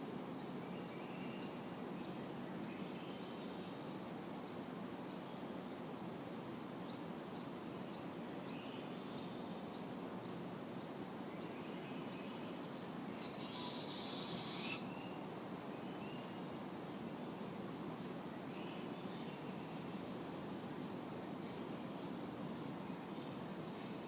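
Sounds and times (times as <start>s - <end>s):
owl hissing screech: 13.2s - 15.1s
faint thin calls: 13.2s - 15.2s.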